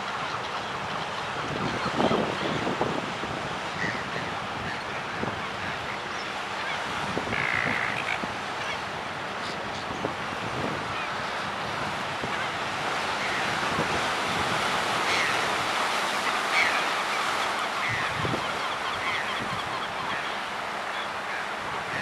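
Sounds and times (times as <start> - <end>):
seabirds calling: 0.0 - 22.0
surf: 0.0 - 22.0
wind: 0.0 - 22.0.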